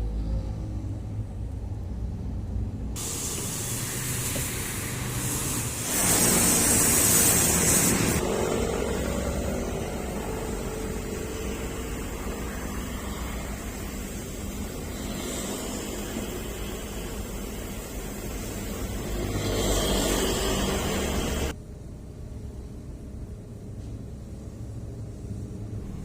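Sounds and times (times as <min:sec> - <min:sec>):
car-wash sprayer hissing: 0:03.0 - 0:21.6.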